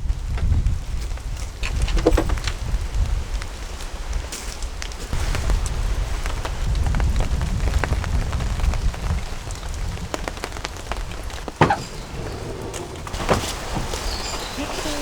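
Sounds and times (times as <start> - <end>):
raindrops tapping: 4.7 - 15.0.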